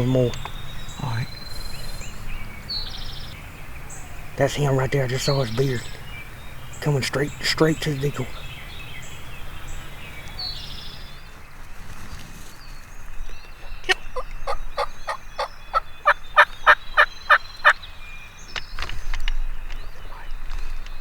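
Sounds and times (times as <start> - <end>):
turkey yelping: 13.8 - 17.8.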